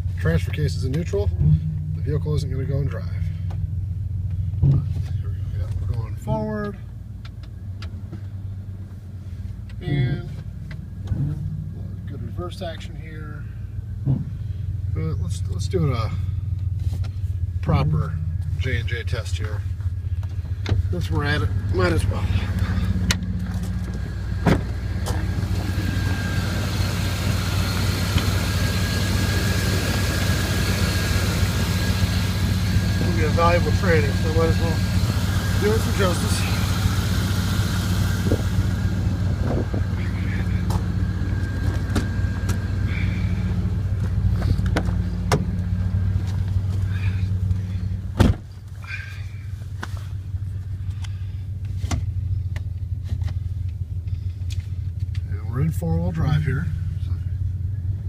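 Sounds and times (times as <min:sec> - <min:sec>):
truck engine running: 0:00.0 - 0:58.0
loud clunk: 0:14.0 - 0:14.4.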